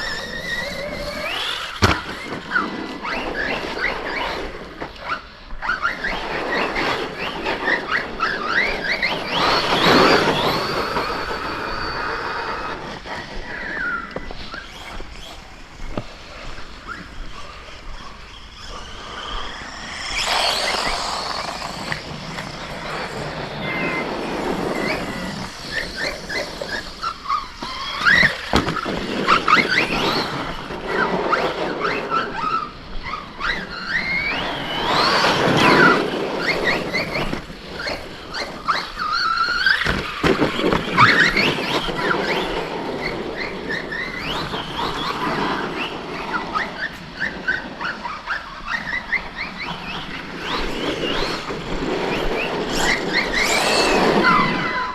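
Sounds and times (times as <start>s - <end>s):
tyres on dirt: 0.0s - 32.1s, 48.7s - 54.9s
electric motor whine: 7.1s - 31.1s.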